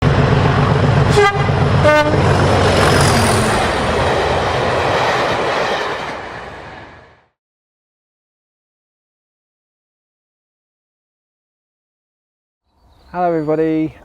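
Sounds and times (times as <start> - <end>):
train rumbling: 0.0 - 7.4
train horn toots: 1.1 - 2.4.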